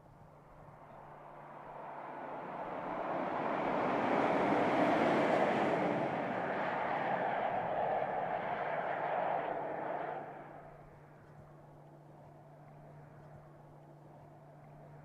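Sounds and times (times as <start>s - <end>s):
car driving past: 0.8s - 10.9s.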